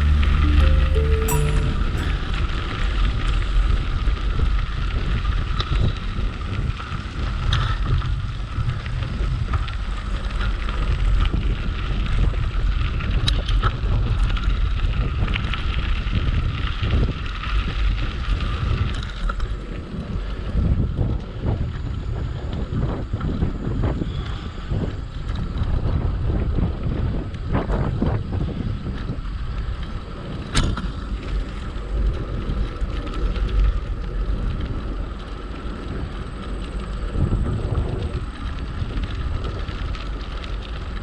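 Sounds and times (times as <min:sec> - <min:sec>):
steady low rumble: 0:00.0 - 0:05.2
wind buffeting microphone: 0:19.9 - 0:31.2, 0:33.7 - 0:41.0.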